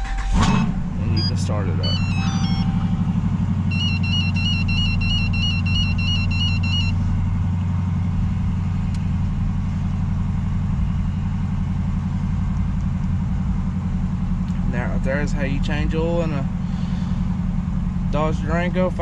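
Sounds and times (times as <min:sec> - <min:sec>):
car engine idling: 0:00.0 - 0:19.0
dashboard warning chime: 0:01.0 - 0:07.0.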